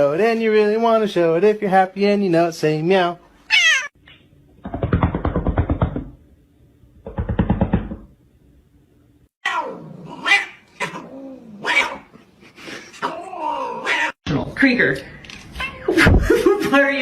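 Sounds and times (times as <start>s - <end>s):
cat meowing: 3.5s - 3.9s.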